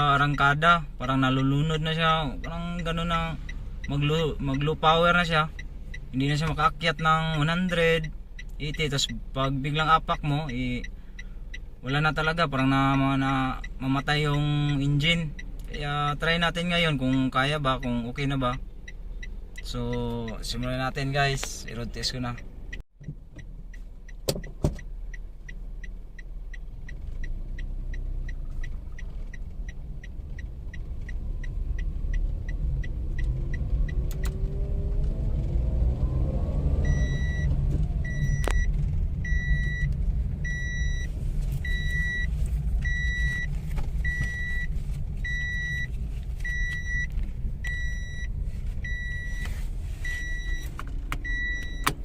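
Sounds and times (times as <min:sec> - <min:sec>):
car engine accelerating: 0:18.2 - 0:52.0.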